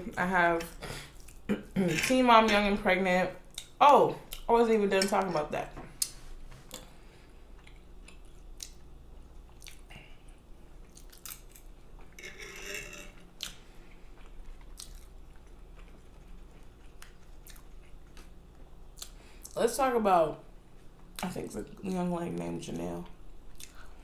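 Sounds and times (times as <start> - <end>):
person chewing food: 6.0 - 12.2, 13.2 - 19.6, 23.5 - 24.0.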